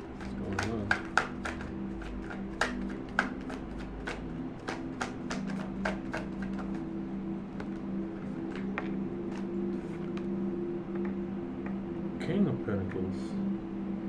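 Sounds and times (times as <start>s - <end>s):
cards being shuffled: 0.0s - 6.9s, 7.6s - 10.3s
steady low hum: 0.0s - 14.0s.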